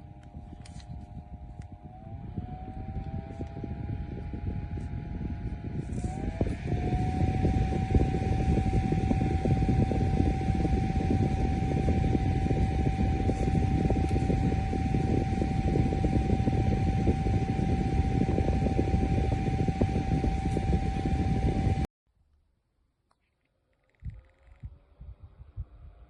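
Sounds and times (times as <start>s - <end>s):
desk fan motor whine: 0.0s - 21.9s.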